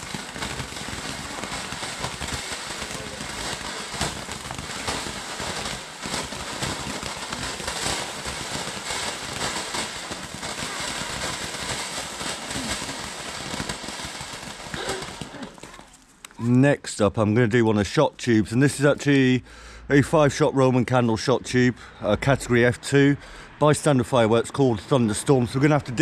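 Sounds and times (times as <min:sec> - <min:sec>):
firework fountain hissing: 0:00.0 - 0:16.1
crackles: 0:00.0 - 0:16.6.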